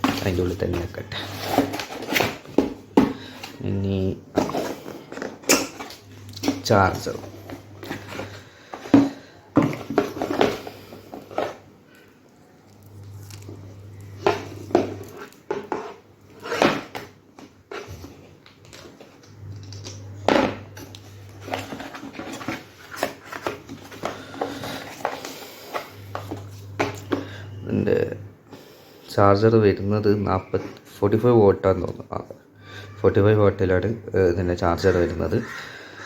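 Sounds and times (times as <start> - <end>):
charger and packaging handling: 0.0 - 12.1, 12.7 - 27.6.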